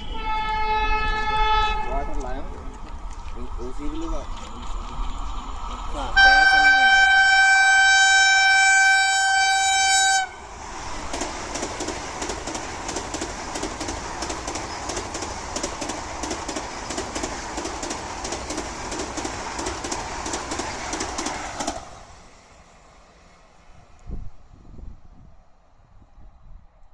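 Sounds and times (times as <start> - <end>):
train horn blaring: 0.0 - 2.5, 6.2 - 10.5
train rushing past: 0.0 - 26.7
wheels clattering over rail joints: 2.1 - 7.0, 10.8 - 21.9.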